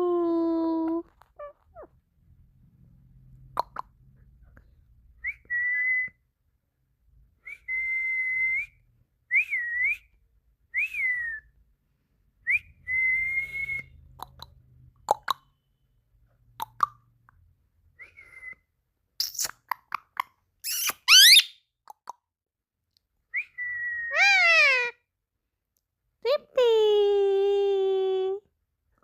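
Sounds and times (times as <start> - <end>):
clear whistles: 5.2 - 6.3, 7.4 - 11.6, 12.4 - 14.1, 17.9 - 18.8, 23.3 - 24.9.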